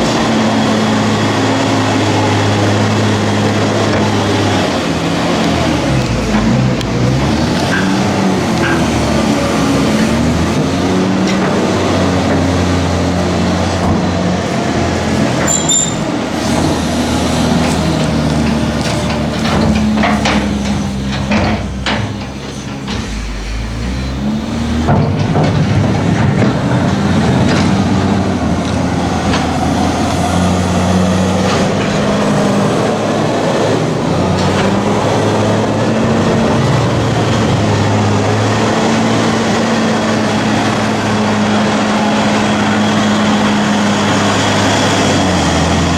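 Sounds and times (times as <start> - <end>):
diesel farm machinery running: 0.0 - 45.9
clanks and knocks: 2.9 - 37.7.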